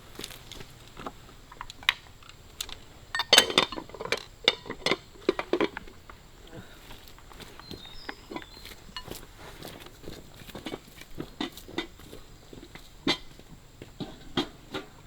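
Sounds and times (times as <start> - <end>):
bowls and chopsticks clattering: 3.1 - 5.9, 7.8 - 12.0.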